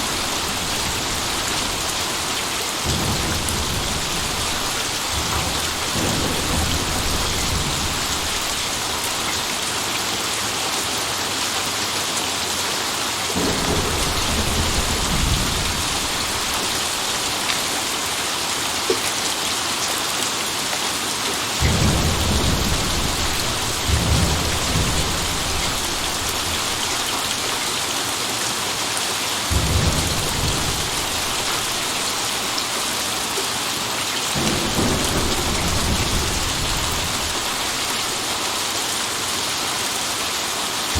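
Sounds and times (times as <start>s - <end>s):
thunder rumbling: 0.0s - 9.6s, 13.4s - 17.8s, 21.6s - 28.0s, 29.5s - 32.6s, 34.4s - 38.4s
steady rain falling: 0.0s - 40.9s.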